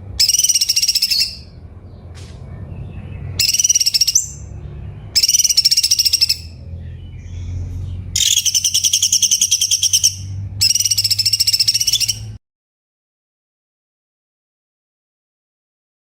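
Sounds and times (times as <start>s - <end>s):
songbird rapid trills: 0.2s - 1.5s, 3.4s - 4.5s, 5.2s - 6.6s, 7.2s - 12.4s
soft bird calls: 0.2s - 12.4s.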